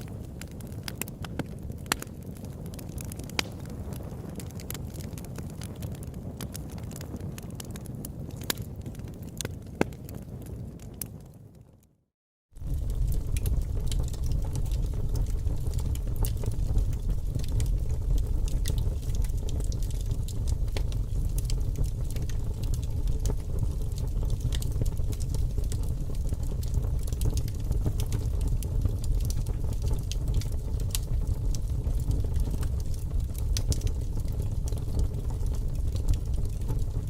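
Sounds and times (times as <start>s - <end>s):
fire crackling: 0.0s - 12.0s, 12.6s - 37.0s.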